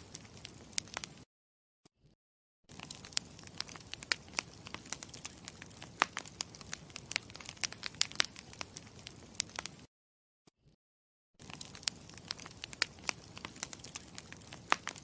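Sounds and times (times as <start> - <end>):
campfire crackling: 0.0 - 1.2, 2.7 - 9.9, 11.4 - 15.0.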